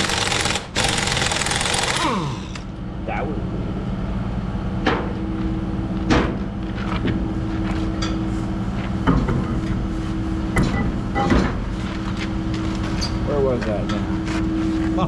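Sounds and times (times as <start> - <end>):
sharp metallic clanks and knocks: 4.8 - 5.2, 10.6 - 11.6.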